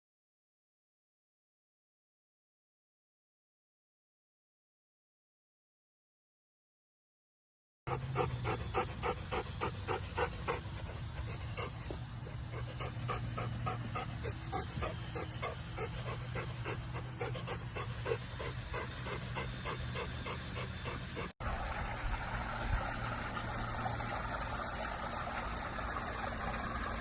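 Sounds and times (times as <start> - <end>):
dog panting: 7.9 - 21.4
steady low hum: 7.9 - 27.0.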